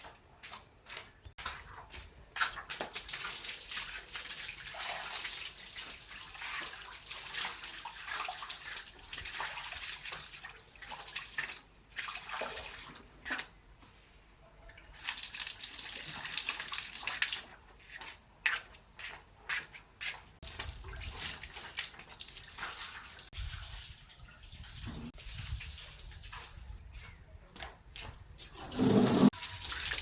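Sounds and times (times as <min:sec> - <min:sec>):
water running and splashing: 0:02.3 - 0:13.1, 0:14.9 - 0:17.6, 0:20.4 - 0:26.8, 0:28.6 - 0:30.0.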